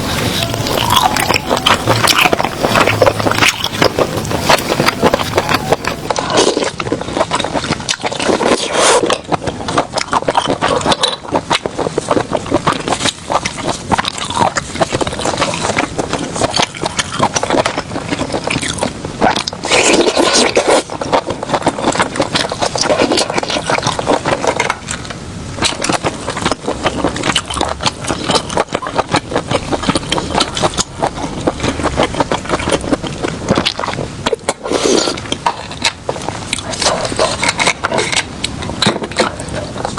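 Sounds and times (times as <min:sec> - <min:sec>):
crunching and crackling: 0:00.0 - 0:15.6, 0:25.6 - 0:39.9.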